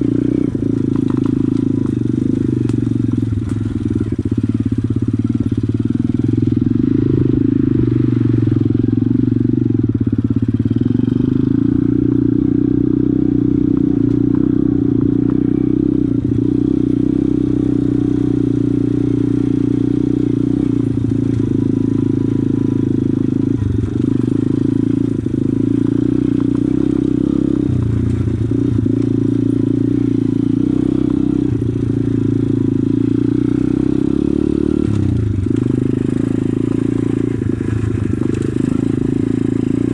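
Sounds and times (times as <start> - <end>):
pit bike engine running: 0.0 - 39.9.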